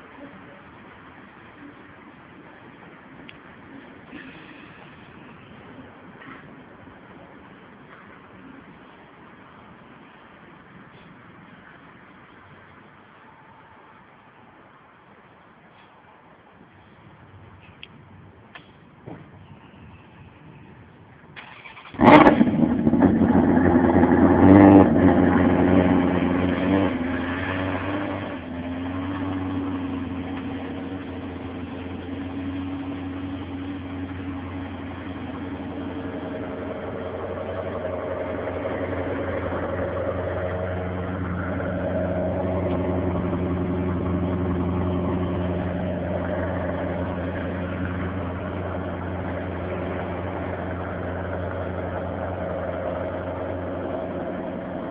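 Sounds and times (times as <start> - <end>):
car engine starting and idling: 21.3 - 54.9.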